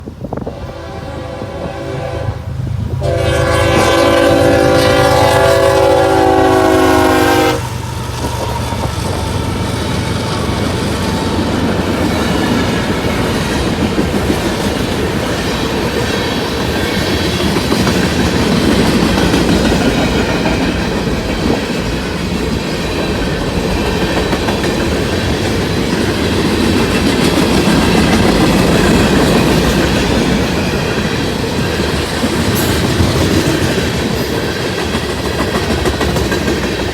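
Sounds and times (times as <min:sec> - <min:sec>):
locomotive engines droning: 0:00.0 - 0:35.6
freight train cars rumbling on rails: 0:00.0 - 0:36.9
locomotive horn: 0:00.4 - 0:07.8.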